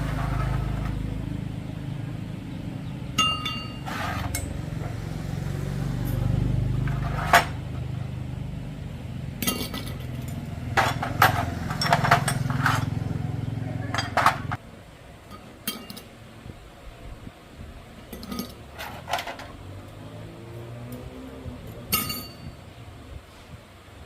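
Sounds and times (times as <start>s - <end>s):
steady low hum: 0.0s - 20.3s
metal tools clinking: 3.2s - 5.0s, 9.4s - 13.1s, 13.8s - 14.6s, 15.3s - 16.1s, 18.1s - 19.6s, 20.9s - 22.6s.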